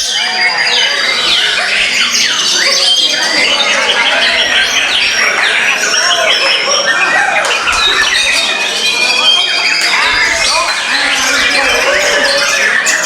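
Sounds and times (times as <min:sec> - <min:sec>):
birds singing whistles and trills: 0:00.0 - 0:13.0.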